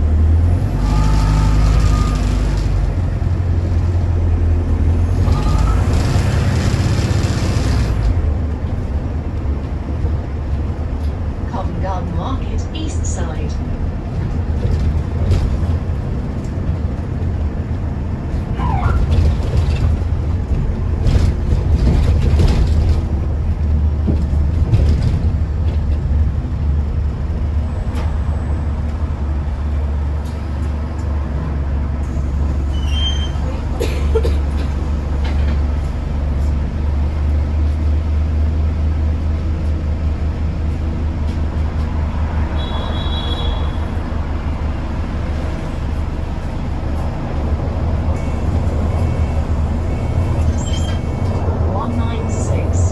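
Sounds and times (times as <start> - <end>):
bus engine drone: 0.0 - 52.9
brief high squeals: 0.8 - 2.4, 32.7 - 33.5, 50.5 - 51.2
body rattles and knocks: 13.8 - 27.4.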